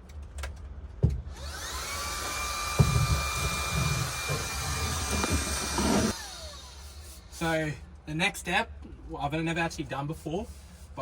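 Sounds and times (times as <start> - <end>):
vacuum cleaner motor whining: 1.4 - 6.2.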